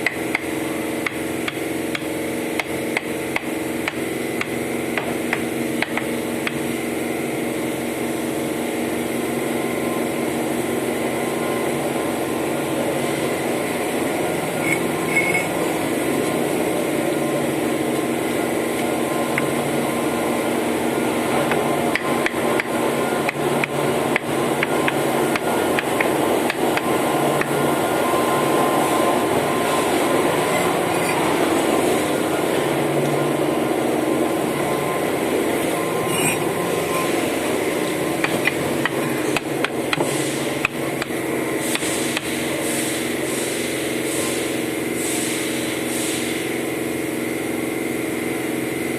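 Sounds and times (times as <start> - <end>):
hammer striking bricks: 0.0 - 6.6, 38.2 - 42.4
steady hum: 0.0 - 48.7.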